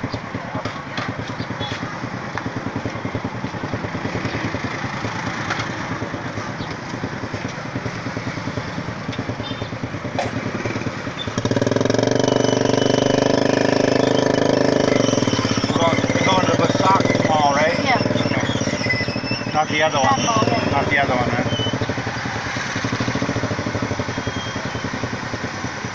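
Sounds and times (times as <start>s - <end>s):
motorcycle engine running loud: 0.0s - 25.9s
motorcycle engines in traffic: 0.0s - 25.9s.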